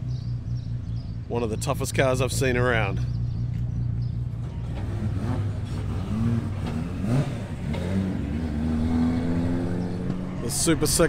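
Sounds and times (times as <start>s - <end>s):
car engines running: 0.0s - 11.0s
engine revving up and down: 4.0s - 11.0s.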